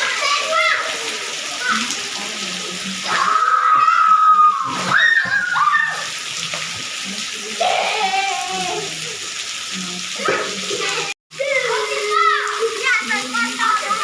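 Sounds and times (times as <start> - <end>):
children shouting: 0.0 - 2.1, 3.1 - 6.2, 10.2 - 14.0
rainwater pouring and splashing: 0.0 - 14.0.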